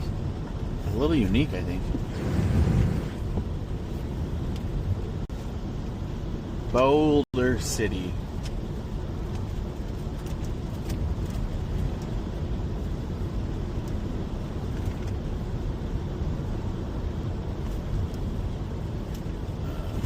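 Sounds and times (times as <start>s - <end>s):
car road noise from inside: 0.0s - 20.0s.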